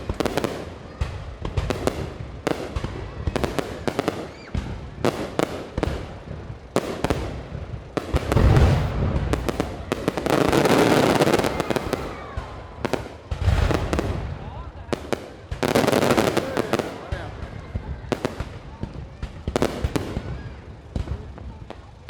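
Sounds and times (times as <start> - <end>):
fireworks bangs: 0.0 - 22.0
fireworks crackling: 0.0 - 22.0
deep fireworks boom: 0.9 - 21.9.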